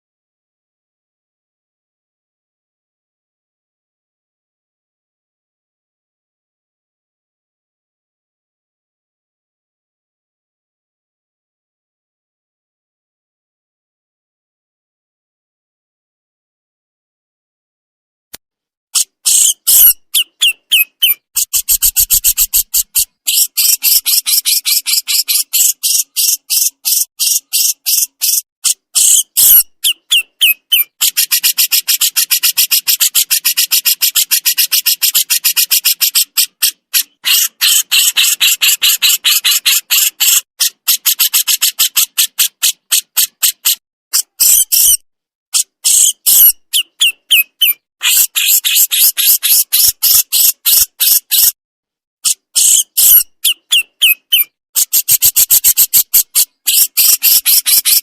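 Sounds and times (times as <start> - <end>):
songbird rattling song: 19.0 - 45.0, 45.6 - 51.6, 52.2 - 58.0.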